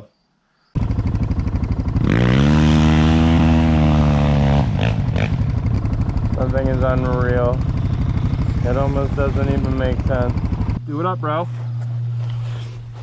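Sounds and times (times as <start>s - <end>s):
dirt bike engine revving: 0.8s - 10.9s
exhaust crackles: 0.8s - 13.0s.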